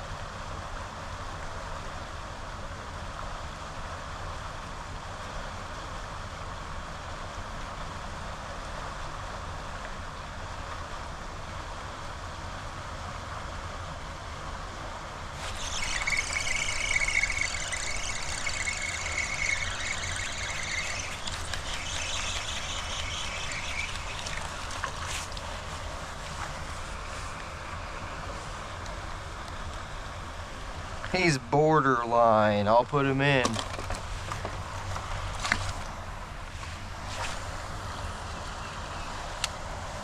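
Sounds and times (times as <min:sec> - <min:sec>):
high whirring squeal: 0:15.3 - 0:29.6
floodwater rushing: 0:15.4 - 0:27.8.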